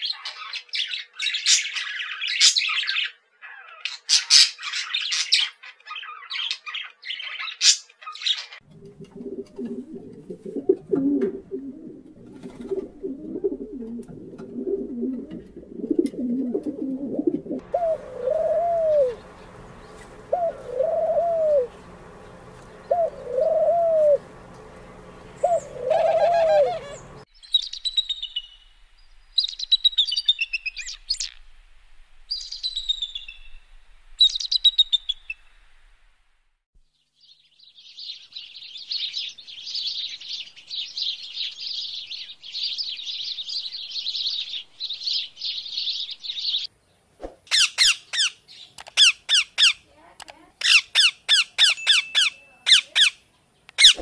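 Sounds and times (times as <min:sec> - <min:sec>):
sparrows chattering: 0:00.0 - 0:08.6, 0:17.6 - 0:28.6, 0:34.2 - 0:35.3, 0:37.2 - 0:46.7, 0:47.5 - 0:54.0
pigeon cooing: 0:08.7 - 0:27.2
bird giving arched calls: 0:14.6 - 0:24.3, 0:25.2 - 0:27.3, 0:53.8 - 0:54.0
eagle high falling chirps: 0:25.1 - 0:28.7.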